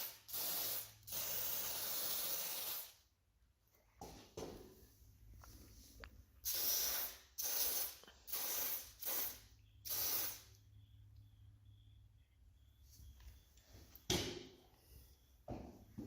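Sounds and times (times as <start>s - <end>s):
aerosol can spraying: 0.0s - 3.0s, 6.4s - 10.5s.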